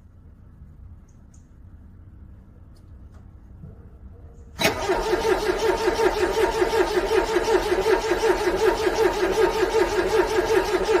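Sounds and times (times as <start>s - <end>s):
car engine cranking: 4.6s - 11.0s.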